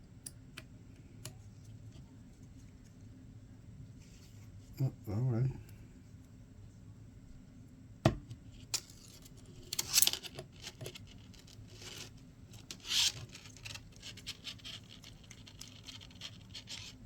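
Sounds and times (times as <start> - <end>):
scraping and rustling: 8.6 - 17.0.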